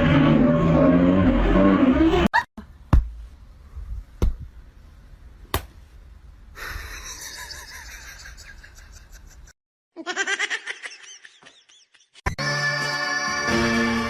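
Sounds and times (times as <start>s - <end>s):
music: 12.3s - 14.0s.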